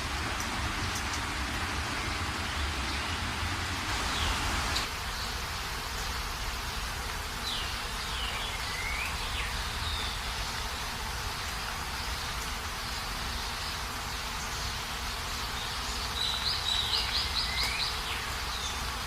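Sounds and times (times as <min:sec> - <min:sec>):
rain hissing: 0:00.0 - 0:19.0
bird chirps: 0:07.4 - 0:10.5.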